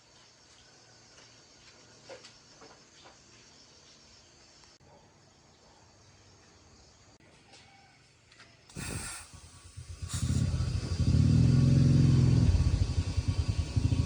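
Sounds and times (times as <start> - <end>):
jeep engine starting and running: 9.3 - 14.0.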